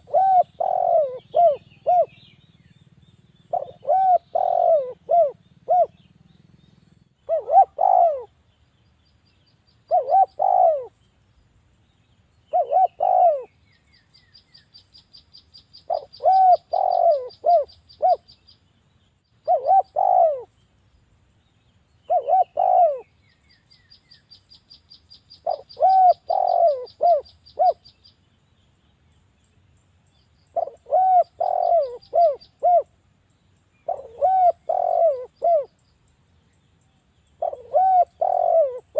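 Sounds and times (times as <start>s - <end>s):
dove cooing: 0.0s - 2.4s, 3.4s - 6.1s, 7.2s - 8.4s, 9.9s - 11.0s, 12.5s - 13.6s, 15.9s - 18.3s, 19.4s - 20.5s, 22.1s - 23.1s, 25.4s - 27.9s, 30.5s - 33.0s, 33.8s - 35.8s, 37.4s - 38.9s.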